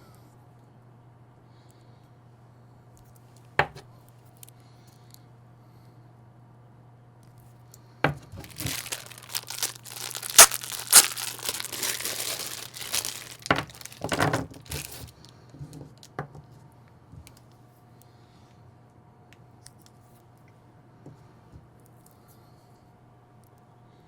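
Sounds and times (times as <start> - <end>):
packaging tearing and crackling: 8.4 - 15.3.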